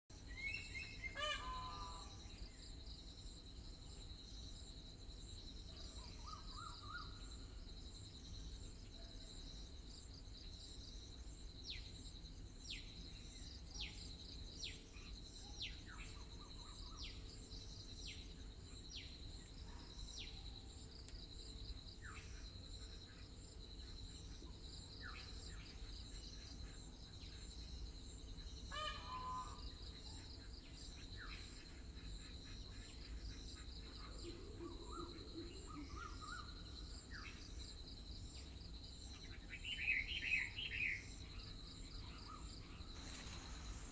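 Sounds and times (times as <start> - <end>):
insects droning: 0.2 - 43.9
scattered bird calls: 39.1 - 43.9.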